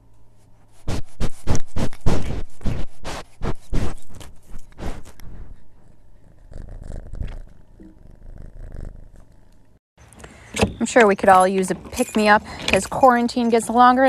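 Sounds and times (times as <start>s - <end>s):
rasping scratching: 0.4s - 9.5s.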